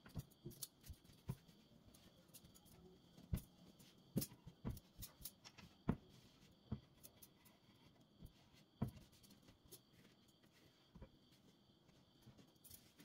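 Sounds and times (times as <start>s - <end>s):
household objects clicking and knocking: 0.0s - 10.2s.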